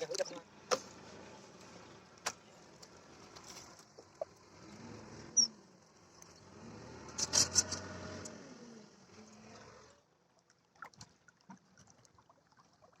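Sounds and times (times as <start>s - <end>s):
engine hum: 0.0s - 10.2s
water noise: 0.0s - 13.0s
faint water drips: 9.1s - 13.0s.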